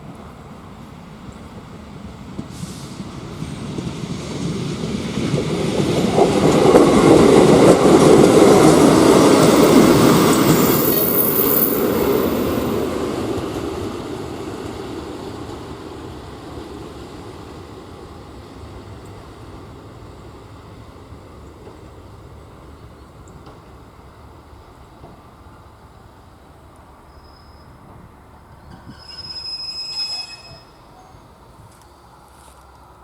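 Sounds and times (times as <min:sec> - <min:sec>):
passenger train passing: 0:00.0 - 0:33.0
high wheel squeal: 0:09.8 - 0:12.5, 0:27.0 - 0:27.9, 0:28.6 - 0:31.3.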